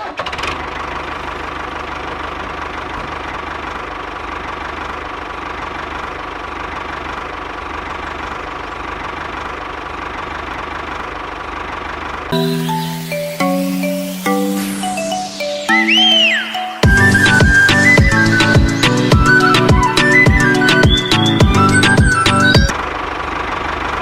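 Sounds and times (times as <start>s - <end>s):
small engine puttering: 0.0s - 12.3s.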